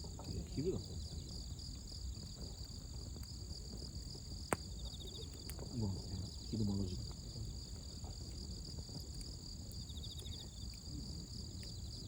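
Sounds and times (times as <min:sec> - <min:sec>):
campfire crackles: 0:00.0 - 0:12.0
crickets and insects chirping: 0:00.0 - 0:12.0.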